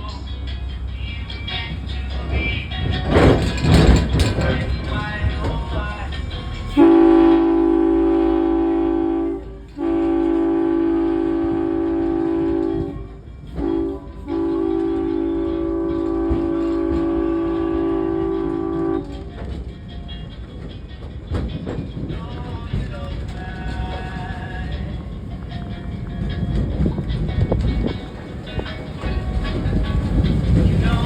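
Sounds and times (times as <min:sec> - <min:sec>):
train rumbling: 0:00.0 - 0:31.0
diesel train horn blasts: 0:03.1 - 0:19.6, 0:22.7 - 0:31.0.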